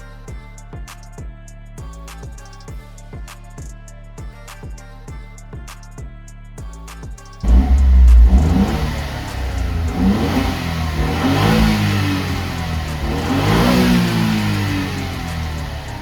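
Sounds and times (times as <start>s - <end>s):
car engine revving: 7.4s - 16.0s.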